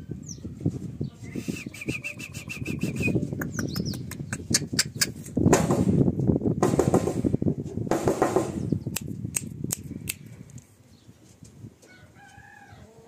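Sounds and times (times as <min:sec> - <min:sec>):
bird chirping: 0:00.2 - 0:05.3, 0:08.4 - 0:09.0.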